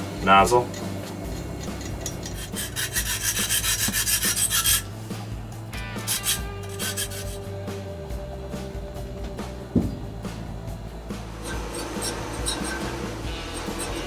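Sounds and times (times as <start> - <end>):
hand tool rasping metal: 0.0 - 5.3, 6.0 - 7.8, 10.0 - 14.0
steady low hum: 0.0 - 14.0.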